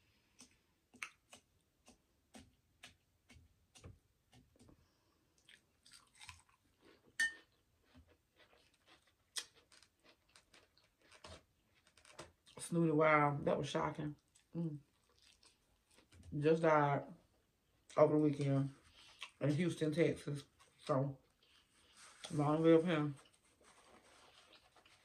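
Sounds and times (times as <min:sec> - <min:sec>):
person chewing food: 0:00.0 - 0:12.6, 0:14.2 - 0:16.3, 0:18.8 - 0:19.4, 0:23.2 - 0:25.0.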